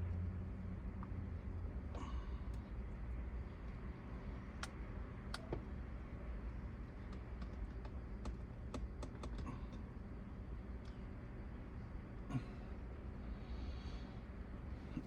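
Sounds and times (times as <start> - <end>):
low steady rumble: 0.0 - 15.0
hex key clicks and taps: 7.0 - 9.8.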